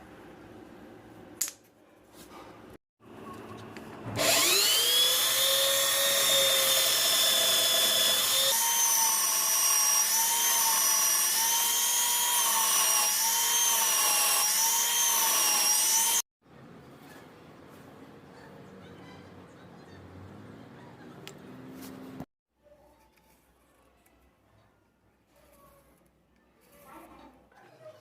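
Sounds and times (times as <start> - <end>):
power tool motor cutting metal: 4.1 - 16.2.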